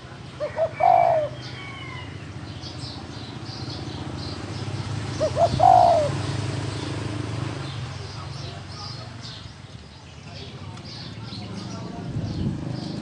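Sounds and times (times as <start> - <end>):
small birds chirping: 0.0 - 13.0
dove cooing: 0.4 - 2.1, 5.1 - 6.3.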